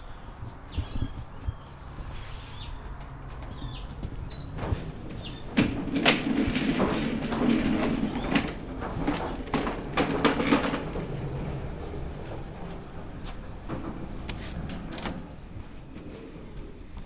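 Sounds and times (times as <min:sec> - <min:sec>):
plastic lawn mower clunking and rattling: 0:04.2 - 0:17.0.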